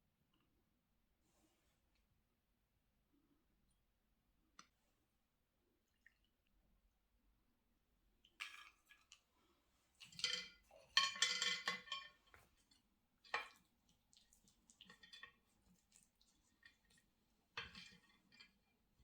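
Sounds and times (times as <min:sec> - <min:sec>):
dishes and utensils clattering: 0:10.0 - 0:12.6, 0:17.6 - 0:18.6.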